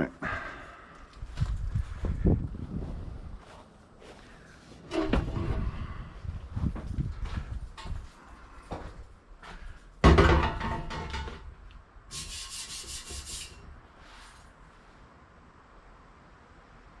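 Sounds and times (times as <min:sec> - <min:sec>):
scrap metal handled and dropped: 0:10.0 - 0:11.5.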